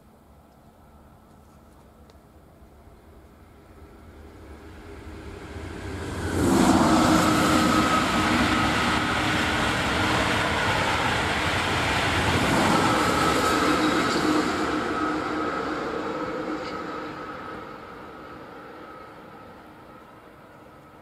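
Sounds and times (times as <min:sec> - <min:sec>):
steady whine: 0:00.0 - 0:21.0
train rushing past: 0:02.6 - 0:21.0.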